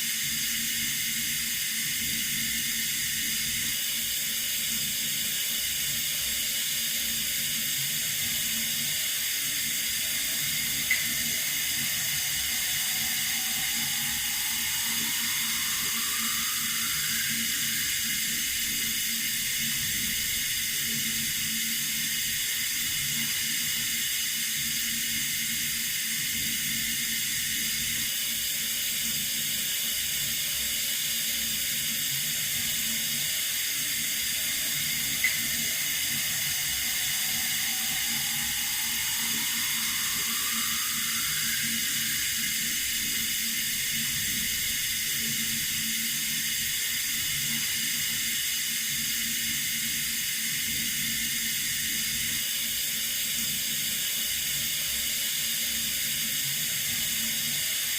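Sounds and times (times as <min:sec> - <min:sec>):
water running from a tap: 0:00.2 - 0:30.1, 0:30.8 - 0:52.2
faint rising tone: 0:08.8 - 0:20.4, 0:33.1 - 0:44.7.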